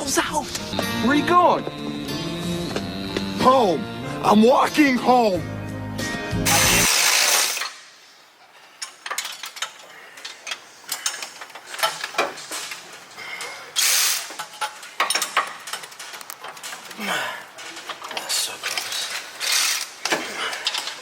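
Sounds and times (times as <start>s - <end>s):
ratchet wrench clicking: 6.5s - 7.7s, 13.8s - 16.3s, 19.4s - 19.9s.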